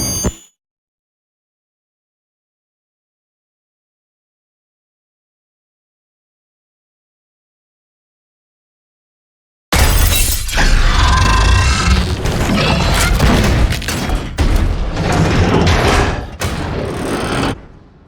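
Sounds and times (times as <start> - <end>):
crashing and booming noise: 9.8 - 18.0.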